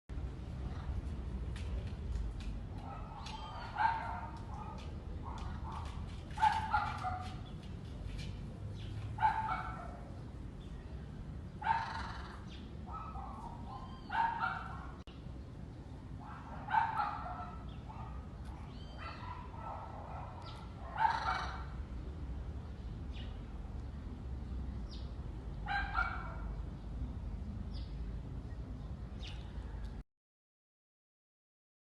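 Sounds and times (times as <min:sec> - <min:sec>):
parrot harsh calls: 0:11.7 - 0:12.4, 0:21.0 - 0:21.7.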